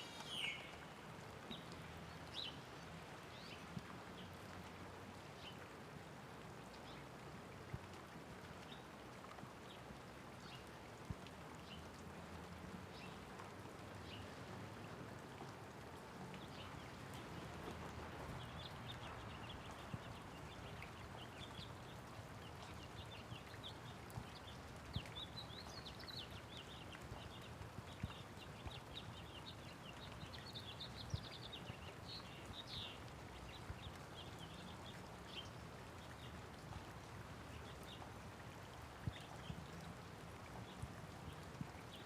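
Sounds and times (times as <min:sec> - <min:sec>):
small birds chirping: 0:00.0 - 0:02.7, 0:16.2 - 0:38.1
light rain falling: 0:00.0 - 0:42.0
raindrops tapping: 0:07.6 - 0:42.0.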